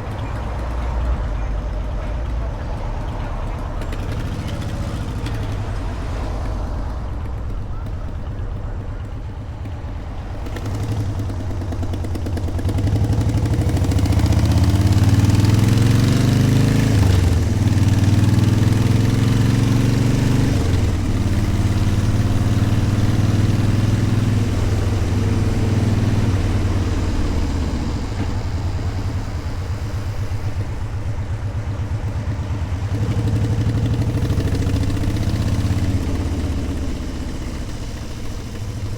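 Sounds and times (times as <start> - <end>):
motorcycle engine accelerating: 0.0 - 38.9
wind rushing: 20.6 - 35.0.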